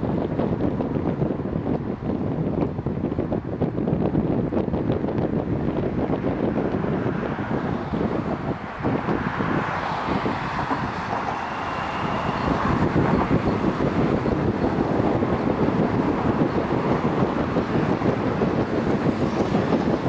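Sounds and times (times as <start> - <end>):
cars passing on road: 0.0 - 20.0
train crossing steel bridge: 6.7 - 20.0.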